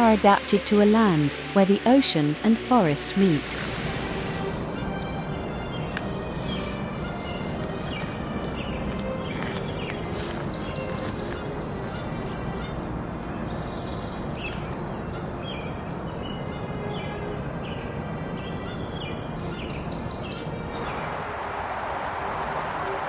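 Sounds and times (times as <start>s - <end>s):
birds chirping: 0.0s - 21.8s
steady outdoor hiss: 0.0s - 23.0s.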